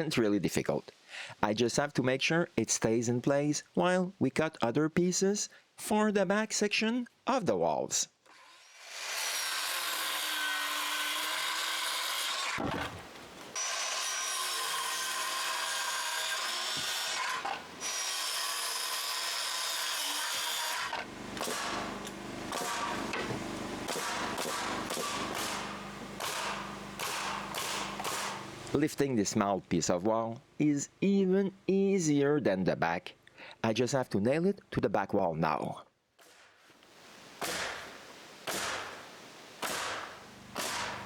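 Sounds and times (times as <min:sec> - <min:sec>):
power saw cutting wood: 0:08.3 - 0:28.8, 0:39.6 - 0:41.0
power tool low hum: 0:08.3 - 0:28.8, 0:39.7 - 0:41.0.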